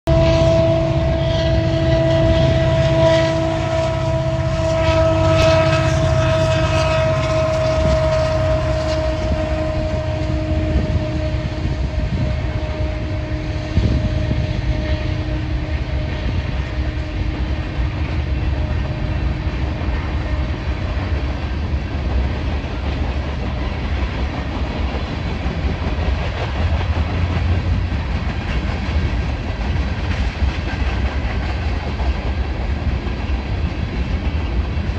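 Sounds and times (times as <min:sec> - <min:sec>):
train horn chord: 0:00.1 - 0:21.8
freight train wheels rumbling: 0:00.1 - 0:34.9.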